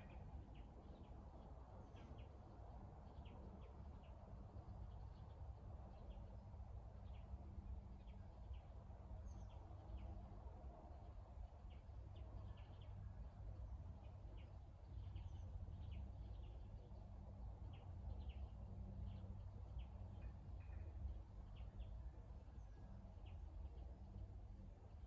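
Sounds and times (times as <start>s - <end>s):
low steady rumble: 0.0s - 25.0s.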